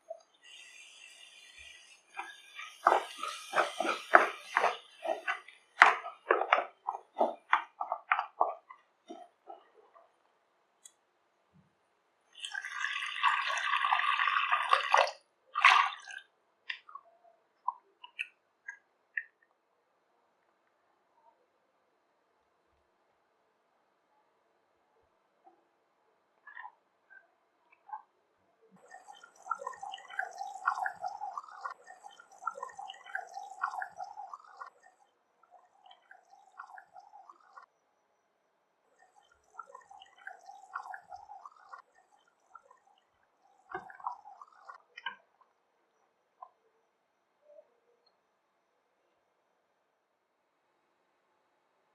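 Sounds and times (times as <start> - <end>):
curry bubbling in a pan: 0.0 - 10.4, 28.8 - 37.7.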